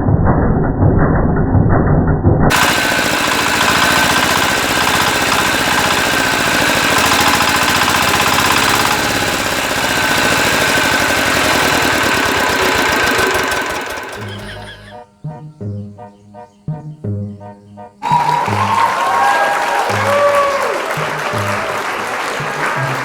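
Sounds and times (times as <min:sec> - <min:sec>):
tractor engine knocking: 0:02.5 - 0:14.9.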